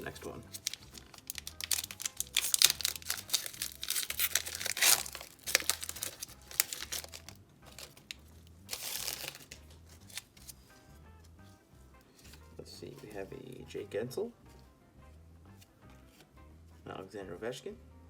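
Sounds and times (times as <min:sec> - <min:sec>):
card pack wrapper crinkling: 0:00.0 - 0:10.6.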